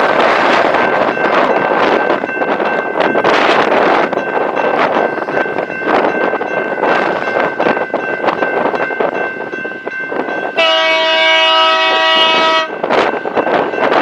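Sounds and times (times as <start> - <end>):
train wheels clacking: 0.0 - 14.0
locomotive air horn: 10.6 - 12.8.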